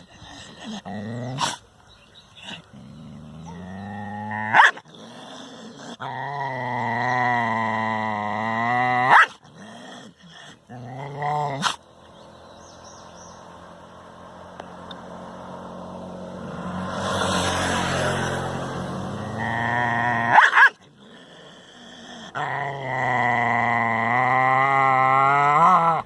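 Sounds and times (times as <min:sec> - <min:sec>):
dog growling: 0:00.0 - 0:01.6, 0:02.4 - 0:11.8, 0:19.1 - 0:26.0.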